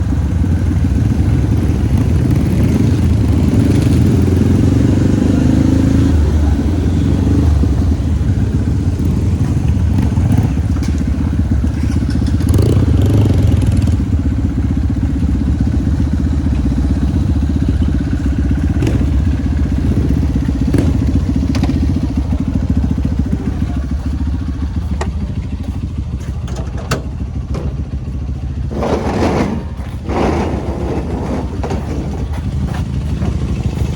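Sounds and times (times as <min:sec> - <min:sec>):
motorcycle engine running: 0:00.0 - 0:33.9
knocks and clatter: 0:26.3 - 0:33.9.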